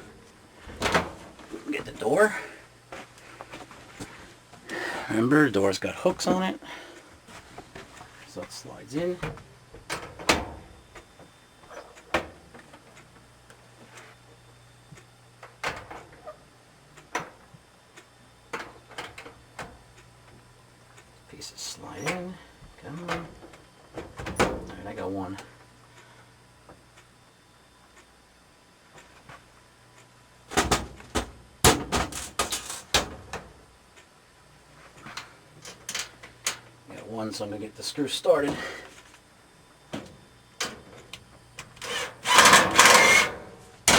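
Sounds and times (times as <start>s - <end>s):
dryer door clunks and clicks: 9.2s - 10.7s, 24.0s - 24.8s
parts scraping: 41.8s - 43.9s.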